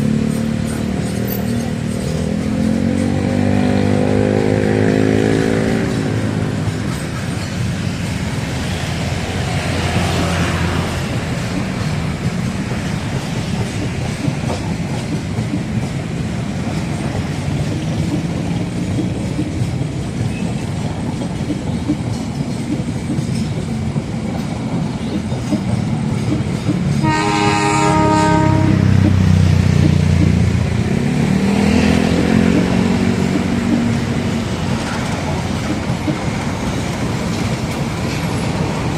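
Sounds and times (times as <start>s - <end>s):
train wheels clattering over rail joints: 0.0s - 38.9s
locomotive horn blast: 27.0s - 29.1s.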